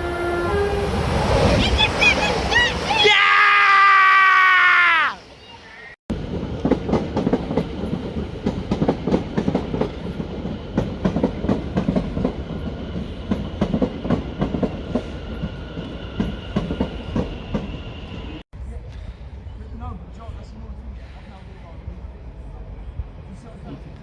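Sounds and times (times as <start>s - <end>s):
train rumble: 0.0s - 3.2s, 6.1s - 24.0s
train wheels clacking: 6.2s - 17.8s.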